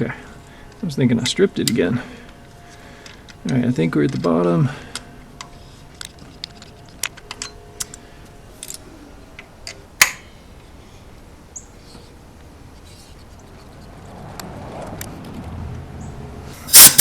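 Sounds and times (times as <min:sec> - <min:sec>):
metal chips cracking: 0:00.4 - 0:10.3, 0:16.7 - 0:17.0
hand tap clicking in metal: 0:09.4 - 0:10.3.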